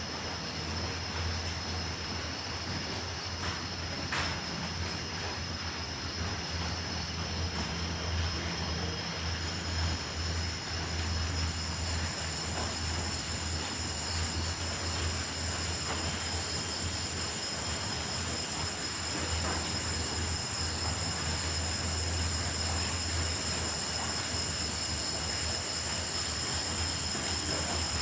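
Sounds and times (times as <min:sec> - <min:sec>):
crickets and grasshoppers trilling: 0:00.0 - 0:28.0
even hiss: 0:00.0 - 0:28.0
steady low hum: 0:00.0 - 0:28.0.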